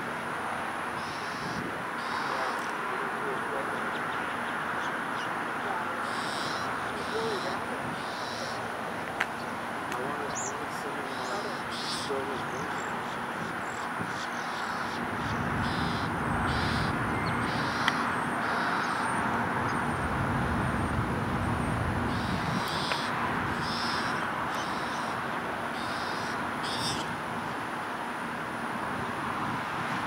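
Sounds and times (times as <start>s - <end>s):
steady outdoor rumble: 0.0s - 30.0s
short high bird calls: 1.0s - 5.3s, 6.0s - 8.7s, 10.3s - 19.2s, 22.1s - 25.2s, 25.8s - 27.1s.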